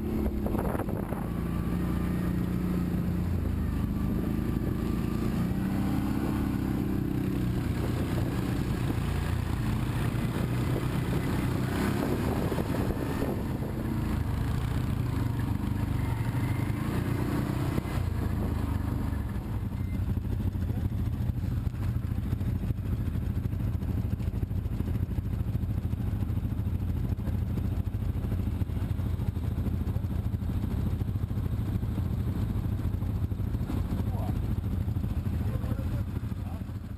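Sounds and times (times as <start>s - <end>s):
engine rumbling: 0.0s - 36.9s.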